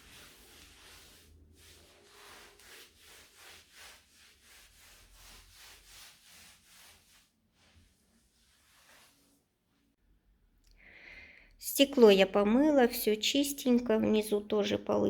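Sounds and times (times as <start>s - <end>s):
scrubbing by hand: 0.0s - 9.4s.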